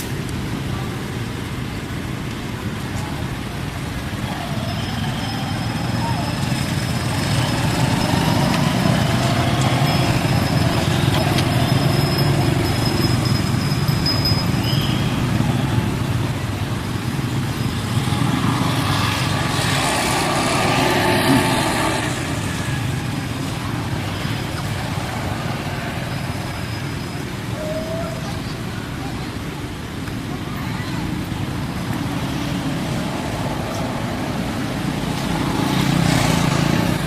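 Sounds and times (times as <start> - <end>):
traffic going past: 0.0 - 37.0
vehicle passing: 5.1 - 13.6, 15.2 - 26.1.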